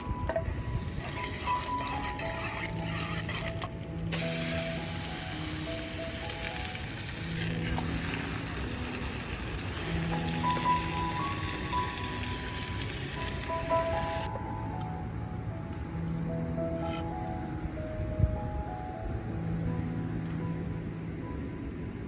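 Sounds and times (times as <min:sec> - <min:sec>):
background music: 0:00.0 - 0:22.0
sizzling hiss: 0:00.4 - 0:14.3.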